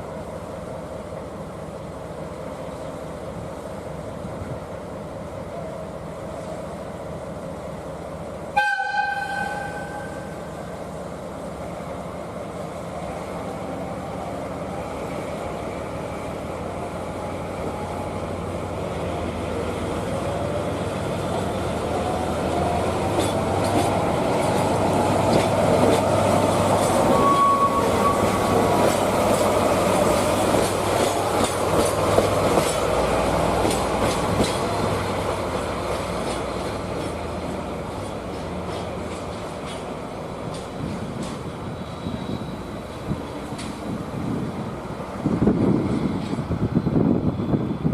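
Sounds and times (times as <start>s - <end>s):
locomotive engine hum: 0.0s - 47.9s
wheels clicking over rail joints: 21.3s - 27.5s, 28.7s - 41.7s
wheel squeal: 27.1s - 28.5s.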